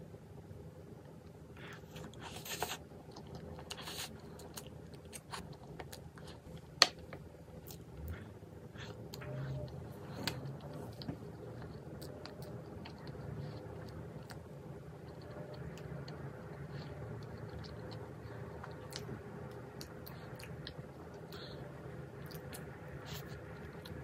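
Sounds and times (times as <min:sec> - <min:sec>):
person chewing and crunching: 0:01.6 - 0:24.0.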